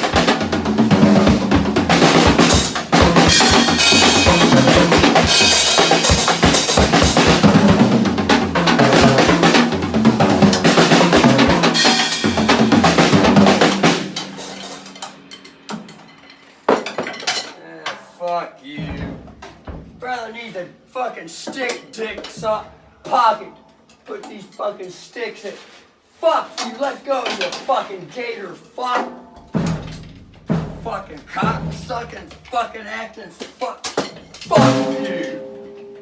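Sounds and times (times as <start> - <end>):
drum kit played fast: 0.0 - 15.9, 29.0 - 32.4, 34.4 - 35.7.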